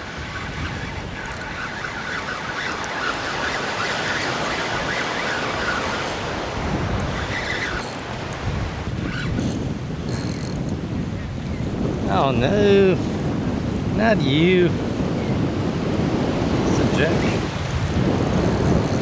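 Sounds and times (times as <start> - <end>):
ocean surf rushing: 0.0 - 8.9, 11.8 - 17.9
wind buffeting microphone: 0.0 - 19.0.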